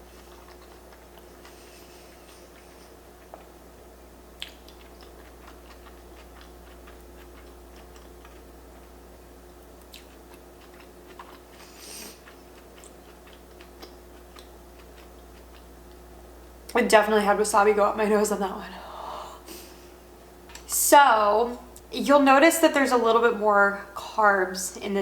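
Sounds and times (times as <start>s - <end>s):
person chewing: 0.0s - 3.6s, 4.3s - 16.1s
steady low hum: 0.0s - 25.0s.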